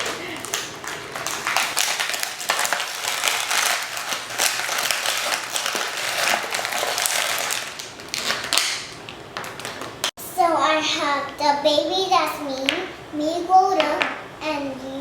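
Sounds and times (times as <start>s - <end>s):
plastic packaging rustling and crackling: 0.0s - 10.1s.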